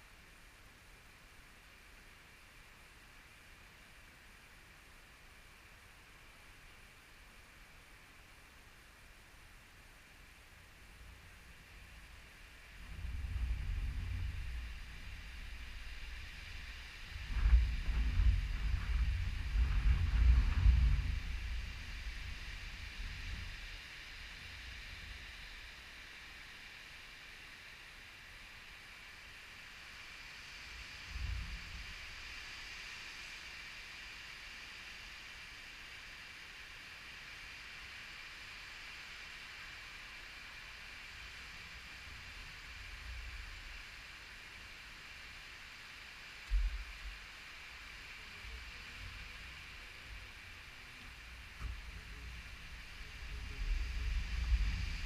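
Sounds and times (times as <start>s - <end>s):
steady high hiss: 0.0s - 55.0s
wind buffeting microphone: 12.8s - 23.7s.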